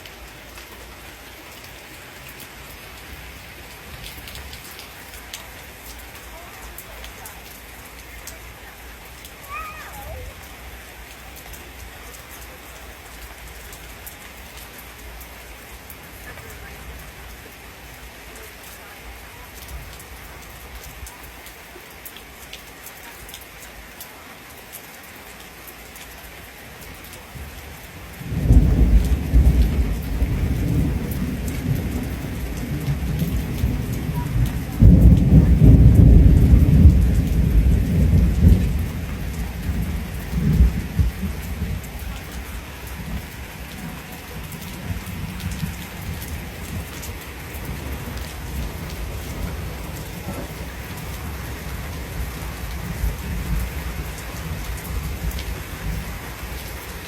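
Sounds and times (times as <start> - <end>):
rain drops ticking: 0.0 - 57.0
rain falling: 0.0 - 57.0
thunder rumbling: 28.2 - 56.2.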